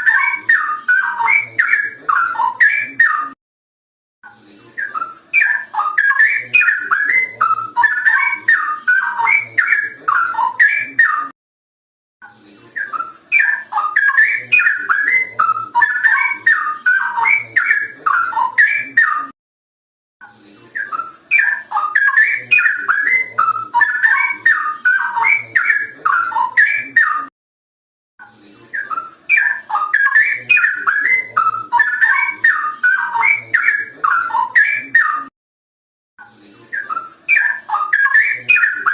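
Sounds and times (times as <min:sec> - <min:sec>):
bird singing whistled notes: 0:04.8 - 0:11.3, 0:12.8 - 0:19.3, 0:20.8 - 0:27.3, 0:28.8 - 0:35.3, 0:36.8 - 0:38.9.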